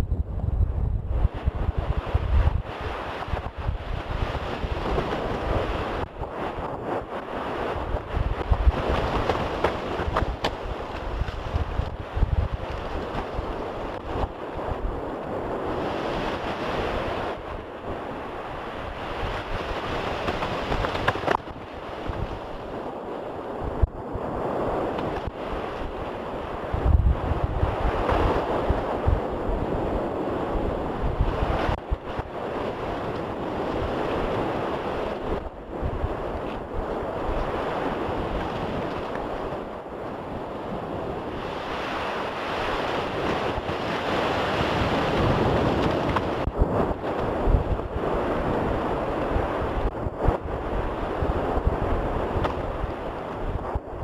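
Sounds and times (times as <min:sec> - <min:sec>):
steady rushing noise: 0:00.0 - 0:38.3
wind buffeting microphone: 0:00.0 - 0:54.0.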